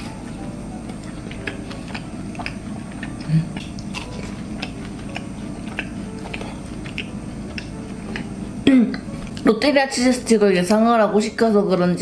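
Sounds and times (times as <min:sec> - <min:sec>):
soft crunches of chewing: 0:00.9 - 0:09.5
wet mouth clicks: 0:01.4 - 0:08.3.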